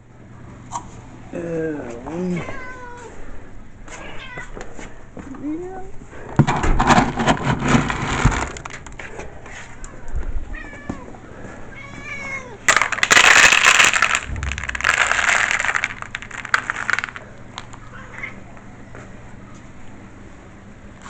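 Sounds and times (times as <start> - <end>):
cats meowing: 2.3 - 3.2, 4.0 - 4.7, 10.5 - 12.7
loud stretches of noise: 13.0 - 17.2.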